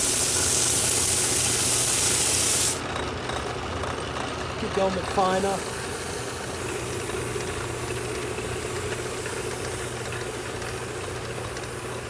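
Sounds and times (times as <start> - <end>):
sandpaper sanding hiss: 0.0 - 2.8
lathe motor hum: 0.0 - 12.0.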